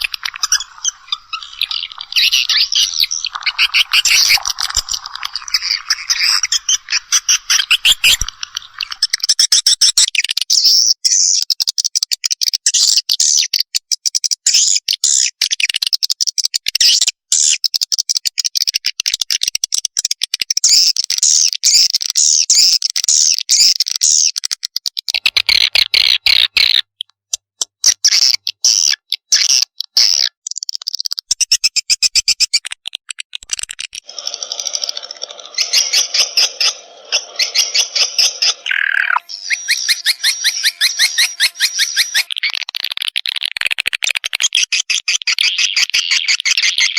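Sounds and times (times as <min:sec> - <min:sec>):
lower-pitched bird call: 0:00.0 - 0:09.3, 0:34.1 - 0:42.4
swiftlet chicks chirping: 0:00.0 - 0:10.0, 0:33.5 - 0:42.7.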